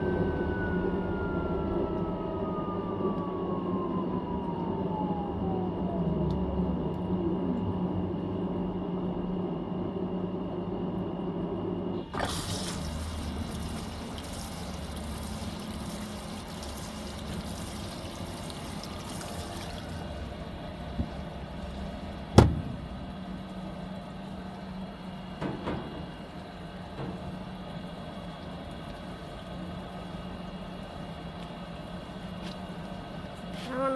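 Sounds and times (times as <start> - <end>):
washing machine humming: 0.0 - 33.9
water rushing into tub: 12.1 - 33.4.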